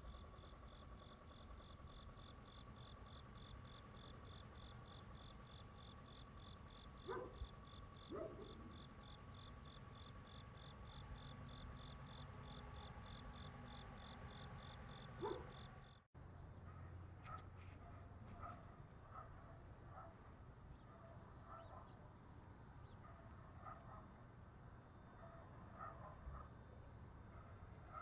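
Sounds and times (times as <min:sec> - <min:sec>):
insect drone: 0:00.0 - 0:16.0
crickets chirping: 0:00.0 - 0:28.0.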